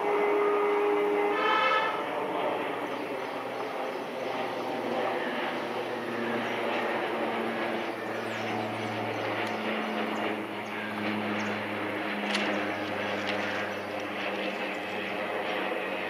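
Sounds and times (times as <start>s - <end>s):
diesel train engine drone: 0.0s - 16.0s.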